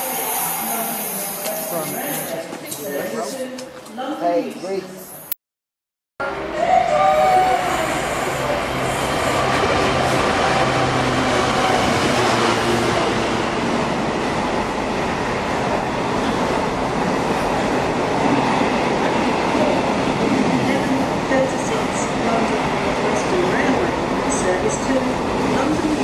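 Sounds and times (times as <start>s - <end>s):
freight train rumbling on rails: 6.2s - 26.0s.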